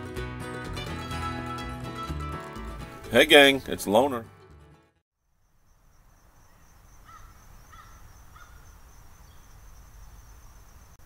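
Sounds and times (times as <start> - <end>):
bird calls: 5.7 - 11.0.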